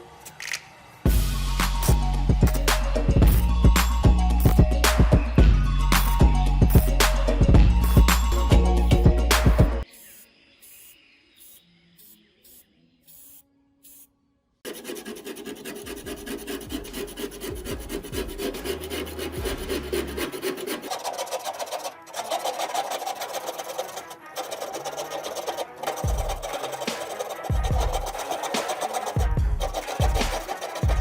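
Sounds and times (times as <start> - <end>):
file rasping on metal: 14.7 - 31.0.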